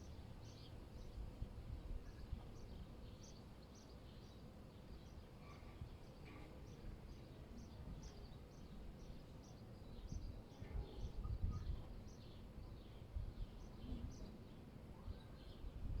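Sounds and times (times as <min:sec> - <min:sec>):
low wind rumble: 0:09.8 - 0:16.0.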